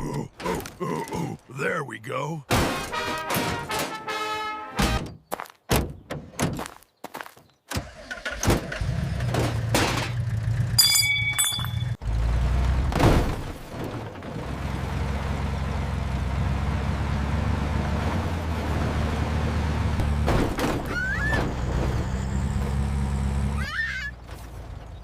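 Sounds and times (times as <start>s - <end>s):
vehicle engine humming: 8.8s - 20.4s, 21.0s - 25.0s
short ringing tone: 10.8s - 12.0s.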